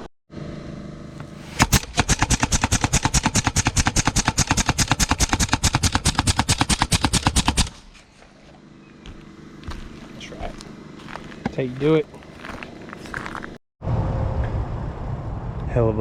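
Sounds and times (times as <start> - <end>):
rapid sharp mechanical knocks: 1.5 - 7.8.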